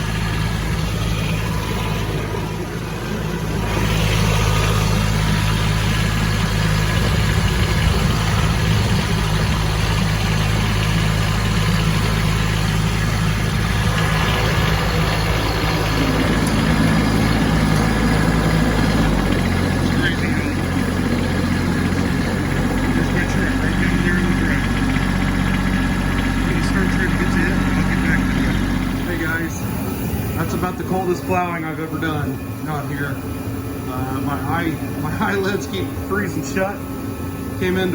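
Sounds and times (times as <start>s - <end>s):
tractor diesel engine under load: 0.0s - 37.9s.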